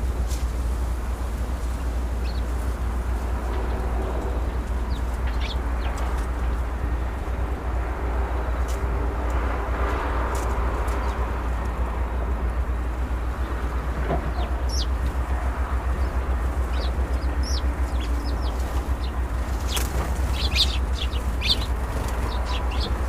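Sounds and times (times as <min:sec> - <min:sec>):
steady low rumble: 0:00.0 - 0:23.0
small birds chirping: 0:01.3 - 0:07.3, 0:10.8 - 0:11.4, 0:12.4 - 0:23.0.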